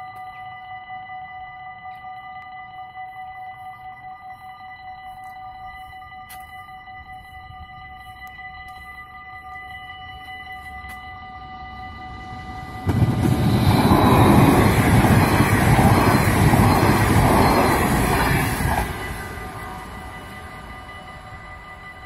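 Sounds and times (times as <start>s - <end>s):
crossing warning bell ringing: 0.0s - 22.0s
passing train rumble: 9.4s - 22.0s.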